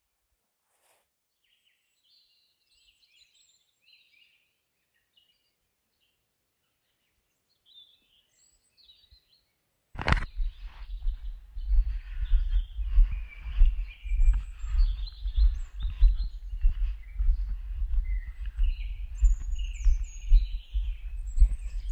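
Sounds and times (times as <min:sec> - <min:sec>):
songbirds chirping: 0:01.2 - 0:21.9
low rumble on microphone: 0:10.1 - 0:21.9.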